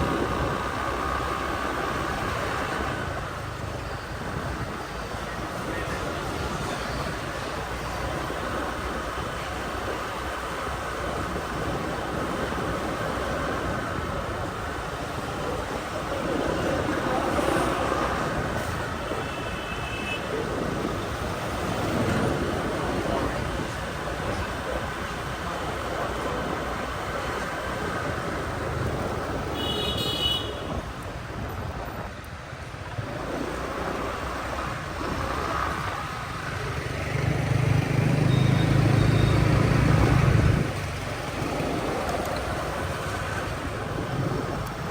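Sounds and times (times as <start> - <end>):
motorbike road noise: 0.0 - 44.9.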